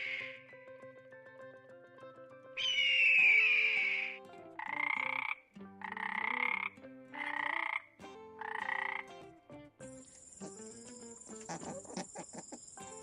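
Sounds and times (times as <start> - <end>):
animal call: 0.0 - 0.4, 2.6 - 7.8, 10.3 - 13.0
soft background music: 0.0 - 13.0.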